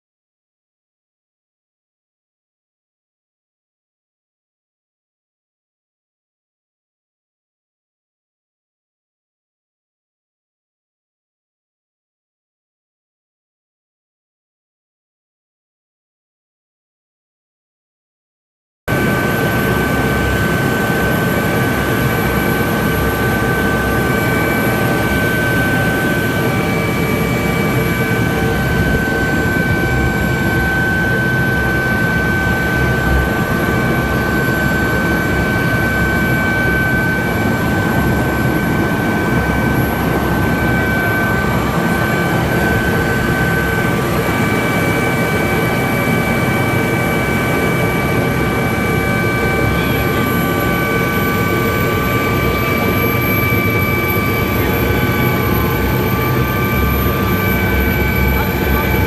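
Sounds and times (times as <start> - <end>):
helicopter rotor and engine: 18.9 - 59.0
high whine: 18.9 - 59.0.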